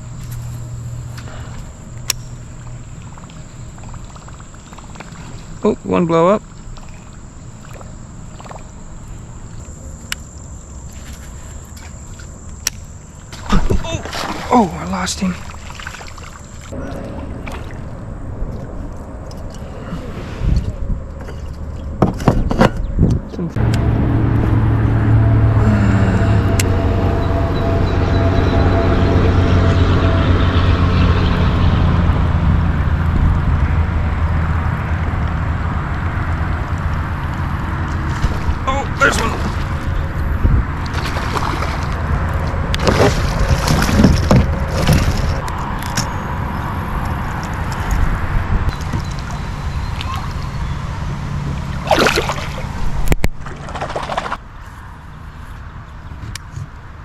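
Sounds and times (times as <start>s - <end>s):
boat motor humming: 0.0s - 20.1s, 20.8s - 56.9s
river water around kayak: 0.0s - 22.3s, 32.4s - 57.0s
wind: 0.0s - 57.0s
sharp click: 2.0s - 2.4s.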